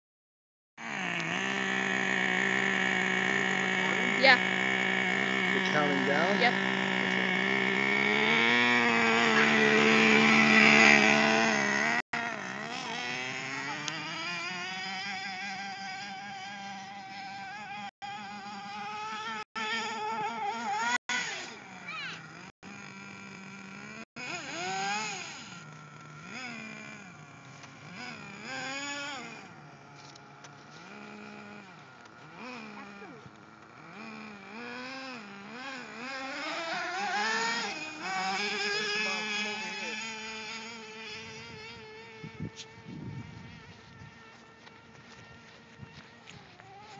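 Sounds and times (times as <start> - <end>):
rc truck engine revving: 0.8 - 46.9.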